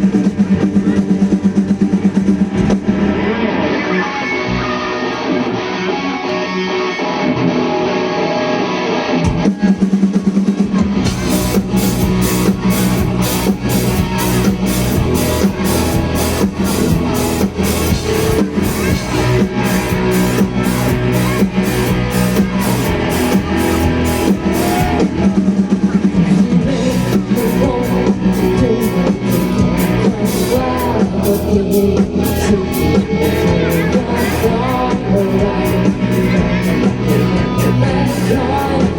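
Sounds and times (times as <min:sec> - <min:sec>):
rock band playing: 0:00.0 - 0:38.9
drum beat with cymbal strokes: 0:09.4 - 0:38.9.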